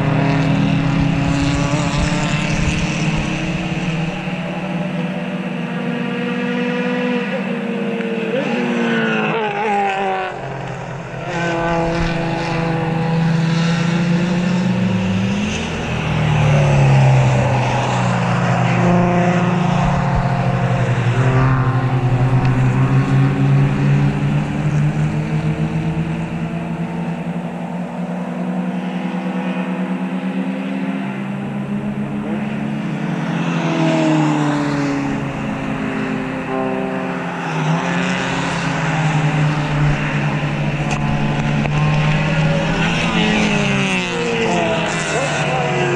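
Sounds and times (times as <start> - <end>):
race cars passing at full throttle: 0.0 - 45.9.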